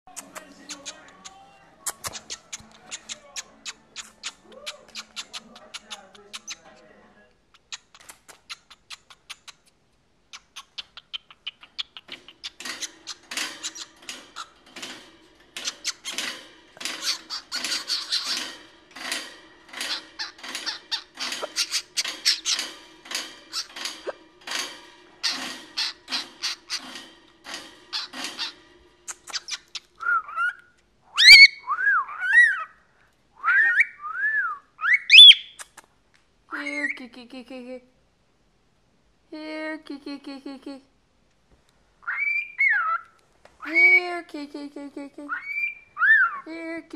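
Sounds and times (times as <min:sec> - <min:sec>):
cockatiel clicky chatter: 0:00.1 - 0:06.8, 0:07.5 - 0:30.0, 0:35.2 - 0:35.9
cockatiel whistling: 0:31.2 - 0:32.6, 0:33.4 - 0:35.6.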